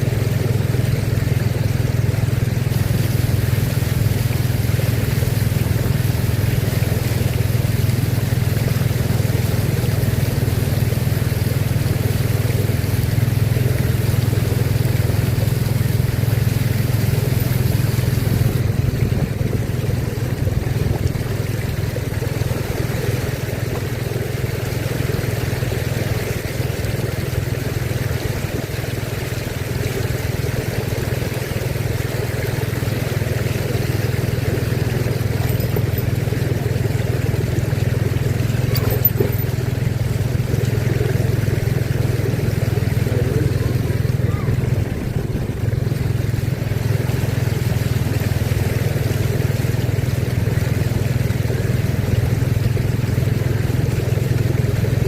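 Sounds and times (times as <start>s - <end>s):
low engine rumble: 0.0s - 55.0s
noise from flooded street: 0.0s - 55.0s.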